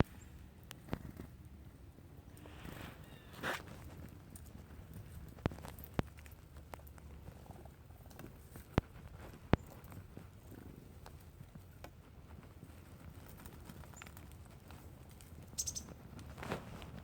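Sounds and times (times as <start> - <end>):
rustling: 2.3 - 17.0
bird chirping: 15.5 - 16.0.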